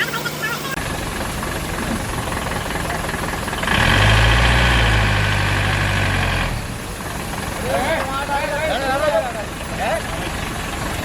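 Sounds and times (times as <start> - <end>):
heavy truck engine running: 0.0 - 11.0.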